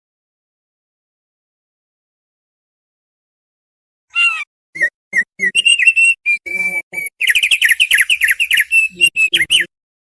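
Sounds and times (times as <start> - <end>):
bird singing whistled notes: 4.8 - 9.7.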